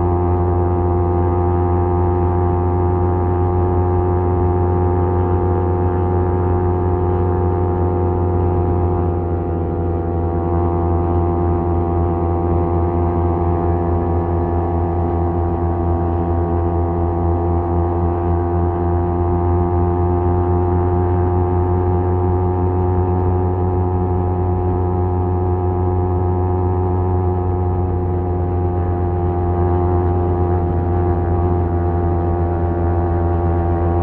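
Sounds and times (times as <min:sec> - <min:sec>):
motorcycle engine cruising: 0:28.4 - 0:34.0.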